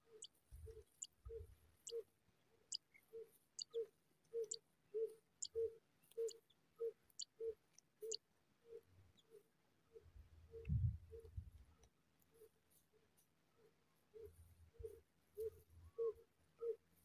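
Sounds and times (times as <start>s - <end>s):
high thin bird chirps: 0.0s - 2.1s, 2.7s - 8.2s.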